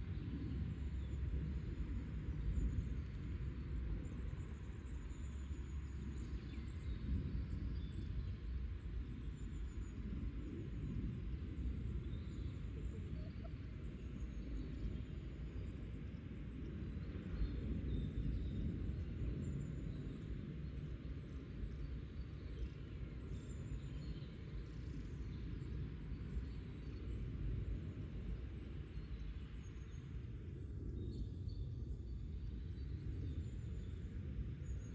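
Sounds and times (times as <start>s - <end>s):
chickens clucking softly: 12.6s - 13.8s.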